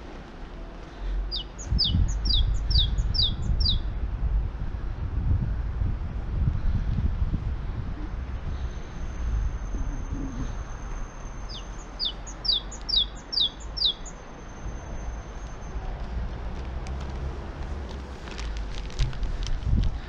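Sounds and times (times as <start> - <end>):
wind rumble: 0.0 - 20.0
songbird chirping: 0.6 - 3.9, 8.4 - 15.9.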